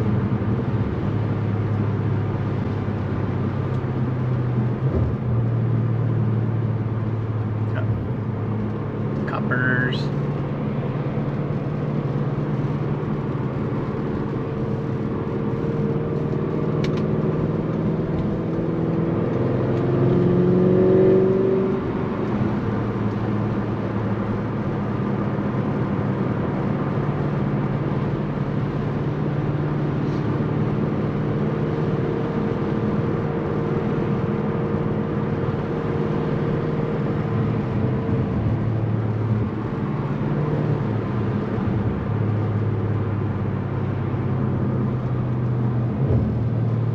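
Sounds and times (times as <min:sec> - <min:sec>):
car engine and exhaust drone: 0:00.0 - 0:46.9.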